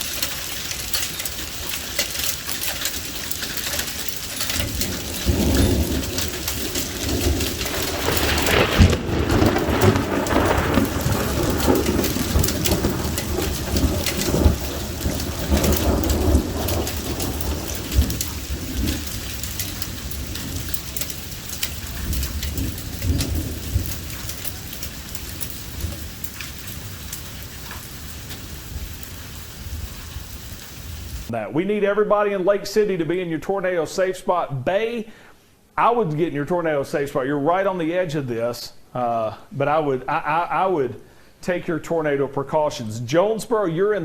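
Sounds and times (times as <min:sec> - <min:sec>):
heavy rain: 0:00.0 - 0:31.3
thunder rolling: 0:00.0 - 0:31.3.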